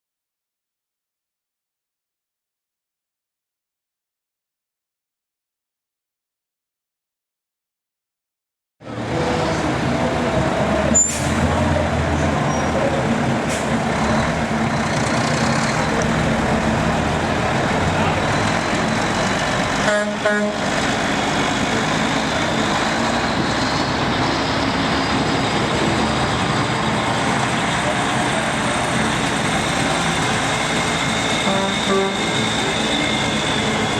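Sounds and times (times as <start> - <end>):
heavy truck engines running: 8.8 - 33.9
outdoor crowd noise: 8.8 - 33.9.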